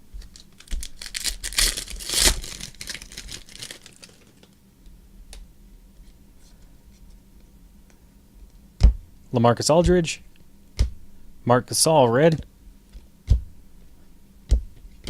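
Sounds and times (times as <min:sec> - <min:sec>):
card wrapper tearing and crinkling: 0:00.2 - 0:04.6.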